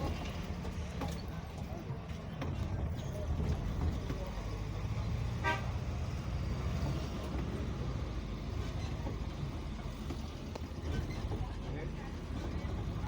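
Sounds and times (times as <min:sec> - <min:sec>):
vehicle traffic rumble: 0:00.0 - 0:13.0
car horn toot: 0:05.4 - 0:05.8.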